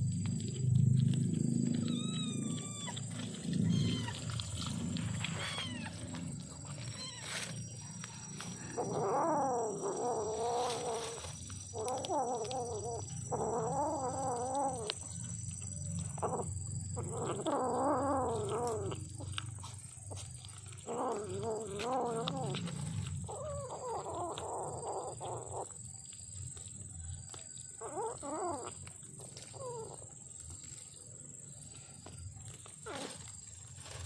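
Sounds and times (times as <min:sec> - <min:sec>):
kitten low rumbling growl: 0:00.0 - 0:25.8
kitten yowling: 0:01.7 - 0:07.5, 0:08.6 - 0:15.0, 0:16.2 - 0:19.5, 0:20.1 - 0:25.7, 0:27.8 - 0:28.8.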